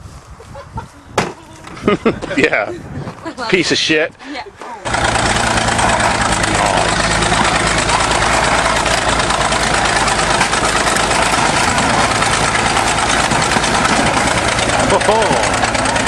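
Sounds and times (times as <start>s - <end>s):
tractor engine idling: 4.8s - 16.0s.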